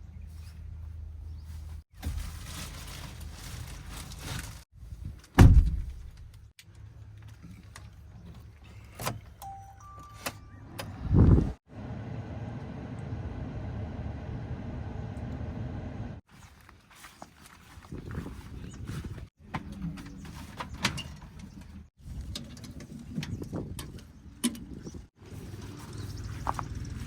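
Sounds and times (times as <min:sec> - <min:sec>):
diesel engine running: 0:10.8 - 0:16.2.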